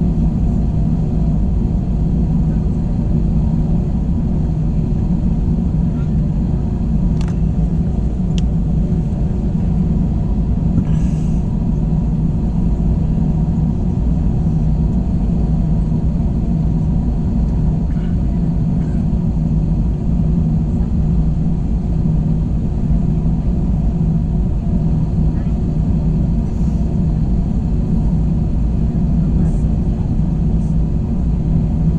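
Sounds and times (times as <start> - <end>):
airliner engine drone in cabin: 0.0 - 31.9.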